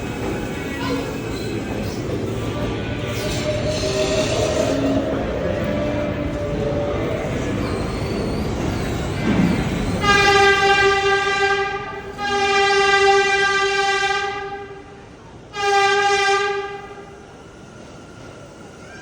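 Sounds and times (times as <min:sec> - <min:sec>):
train running noise: 0:00.0 - 0:19.0
train horn blasts: 0:10.0 - 0:14.9, 0:15.5 - 0:17.2.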